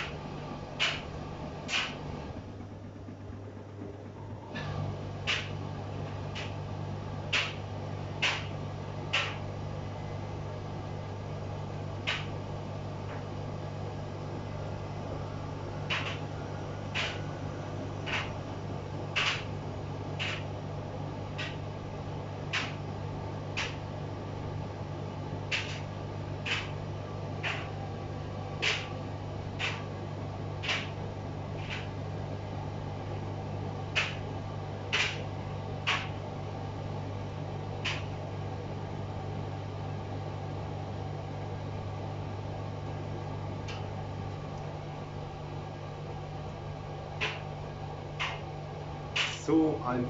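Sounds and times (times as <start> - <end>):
washing machine drum swish: 0.0 - 6.7
washing machine motor hum: 0.0 - 50.0.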